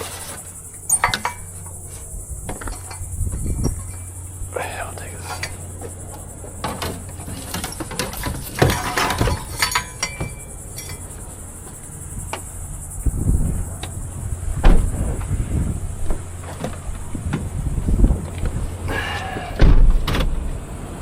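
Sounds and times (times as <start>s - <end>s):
fan clinking and knocking: 0.0s - 20.7s
low hum: 0.0s - 21.0s
heavy thumps: 11.6s - 20.4s.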